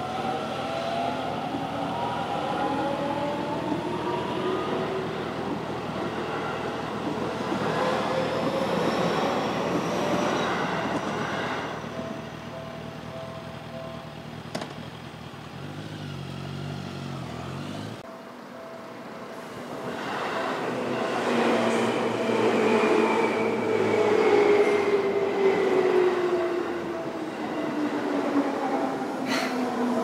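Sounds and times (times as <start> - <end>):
train running noise: 0.0 - 15.6, 18.0 - 30.0
crossing warning bell ringing: 8.9 - 14.5.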